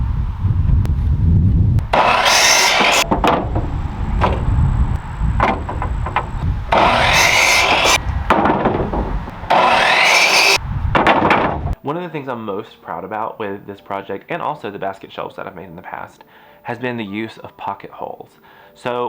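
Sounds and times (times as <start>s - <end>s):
power tool whining: 1.8s - 8.3s, 8.9s - 10.6s
boards knocking: 1.9s - 11.7s.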